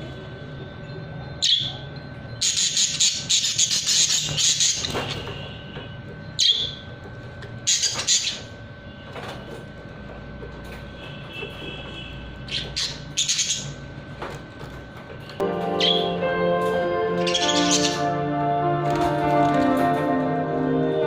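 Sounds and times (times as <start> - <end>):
parrots squawking: 2.4 - 5.4, 7.7 - 8.5, 12.5 - 13.8, 15.6 - 16.2, 17.0 - 18.4.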